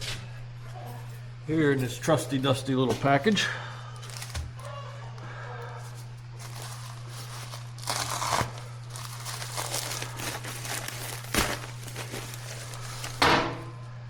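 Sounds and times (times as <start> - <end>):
steady low hum: 0.0 - 14.0
package crinkling and rustling: 4.0 - 4.7, 5.9 - 13.3.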